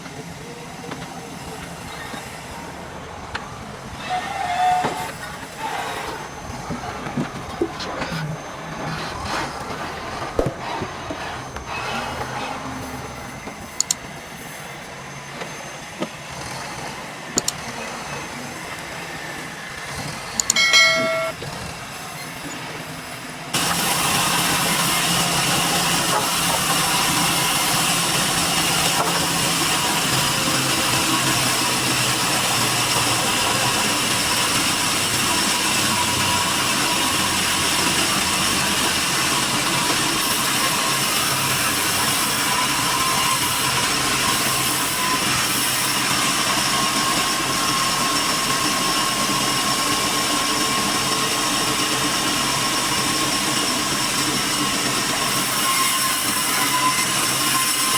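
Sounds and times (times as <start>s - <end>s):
sawmill machine running loud: 0.0s - 57.9s
short pitched tone: 20.5s - 21.4s.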